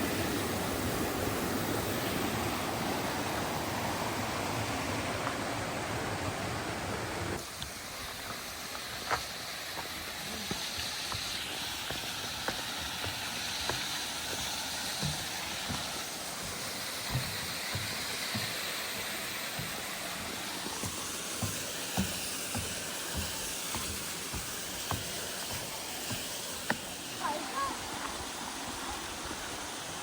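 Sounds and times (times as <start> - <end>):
stream water rushing: 0.0 - 30.0
footsteps on path: 4.2 - 5.8, 6.8 - 28.3.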